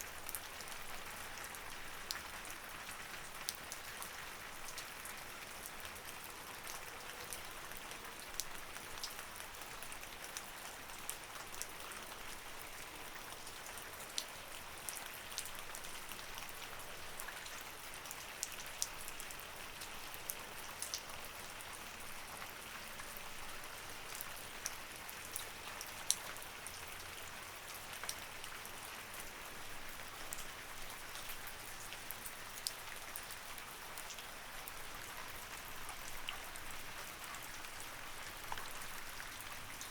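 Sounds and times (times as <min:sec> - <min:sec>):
steady rain falling: 0:00.0 - 0:39.9
raindrops ticking close by: 0:00.1 - 0:39.9.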